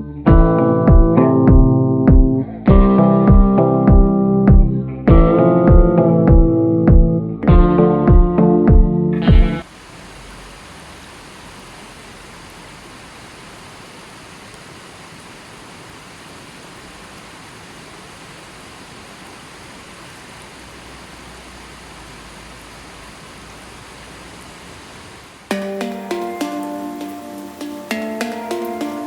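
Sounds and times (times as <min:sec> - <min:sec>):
electronic piano music: 0:00.0 - 0:09.6, 0:25.5 - 0:29.0
steady rushing hiss: 0:09.2 - 0:29.0.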